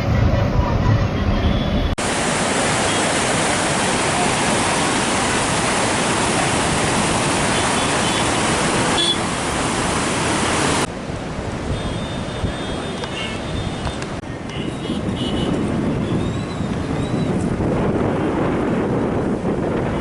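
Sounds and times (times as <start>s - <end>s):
river rushing: 2.0s - 14.3s.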